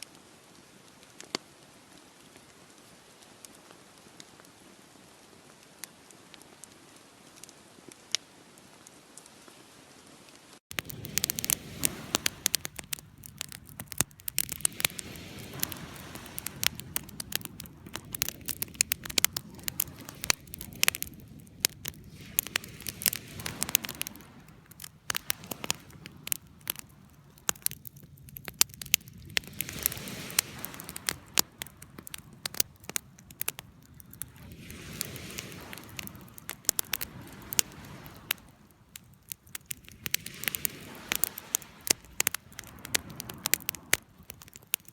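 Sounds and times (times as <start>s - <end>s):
campfire crackles and pops: 0.0s - 9.5s, 10.3s - 44.9s
rush of flames: 10.7s - 44.9s.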